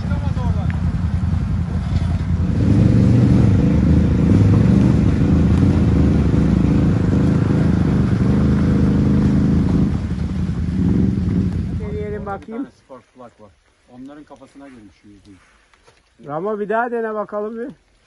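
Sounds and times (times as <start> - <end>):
atv engine revving: 0.0 - 12.5.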